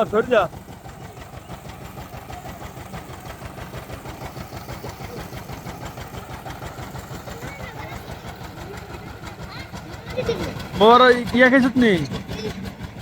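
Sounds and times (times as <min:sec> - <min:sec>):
diesel engine chugging: 0:00.0 - 0:13.0.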